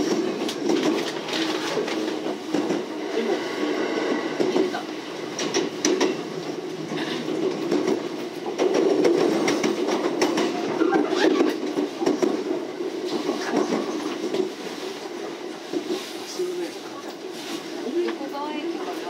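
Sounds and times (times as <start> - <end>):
train rumbling: 0.0 - 19.0
wheels clacking over rail joints: 4.4 - 16.0.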